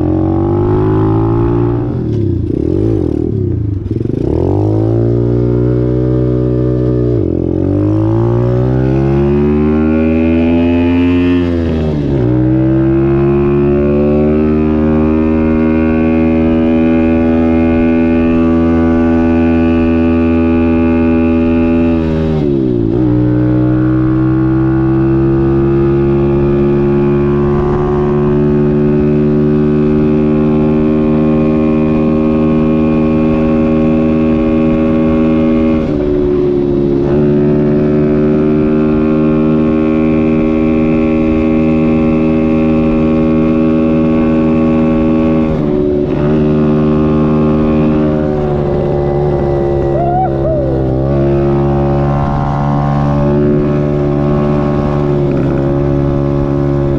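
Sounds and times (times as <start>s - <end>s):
dirt bike engine revving: 37.0s - 56.9s.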